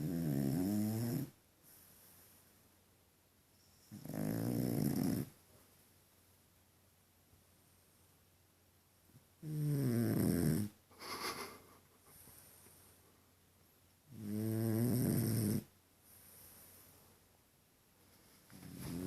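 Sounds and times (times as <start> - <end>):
dog snoring: 0.0 - 1.4, 3.7 - 5.4, 9.4 - 10.8, 14.1 - 15.7, 18.6 - 19.0.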